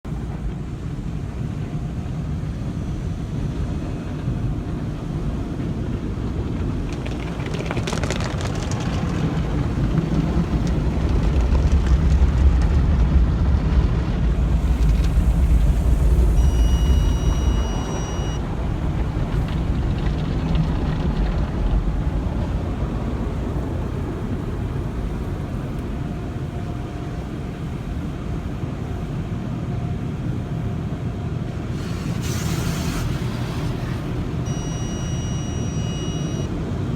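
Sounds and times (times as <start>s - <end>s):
car wash machinery rumbling: 0.1s - 36.9s
steady high-pitched tone: 14.6s - 18.4s.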